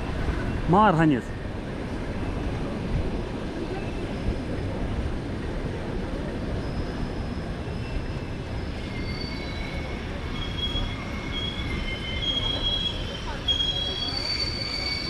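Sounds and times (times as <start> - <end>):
train rumbling on rails: 0.0 - 15.0
high wheel squeals: 6.4 - 15.0.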